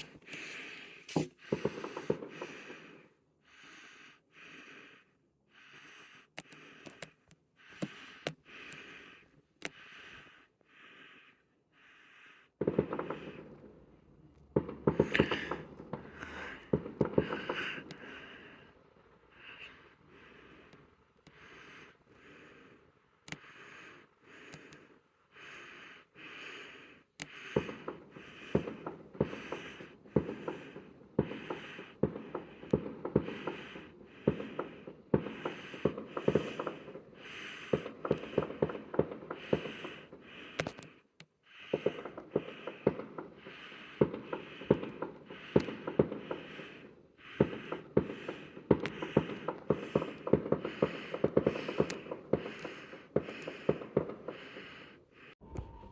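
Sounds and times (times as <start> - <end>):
fireworks crackling and popping: 14.4 - 18.4, 47.4 - 54.6.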